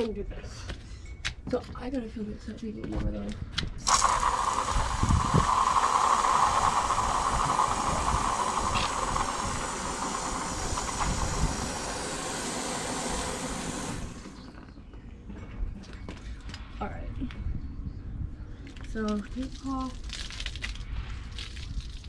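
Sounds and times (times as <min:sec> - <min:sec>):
hose water filling a container: 0:03.8 - 0:14.5, 0:20.0 - 0:22.0.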